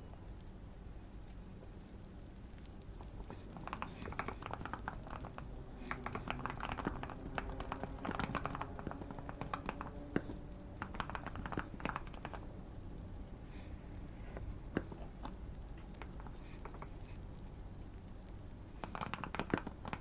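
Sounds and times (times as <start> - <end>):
typing on mechanical keyboard: 3.2 - 12.6, 18.8 - 20.0.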